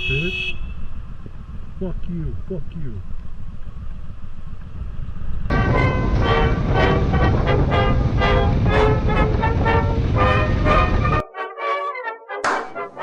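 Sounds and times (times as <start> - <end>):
horn toots: 0.0 - 0.9, 5.5 - 11.2
low traffic rumble: 0.0 - 11.2.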